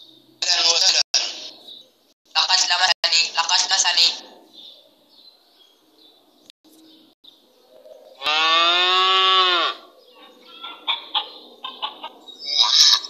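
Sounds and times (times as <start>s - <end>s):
cow mooing: 8.2s - 9.9s.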